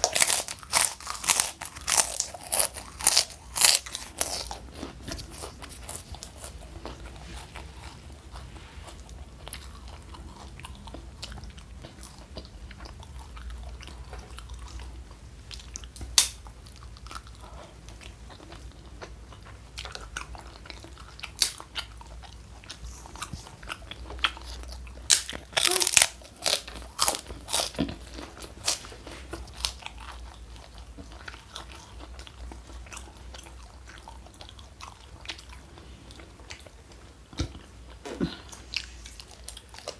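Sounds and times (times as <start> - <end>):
wet chewing with crunchy bites: 0.0 - 39.9.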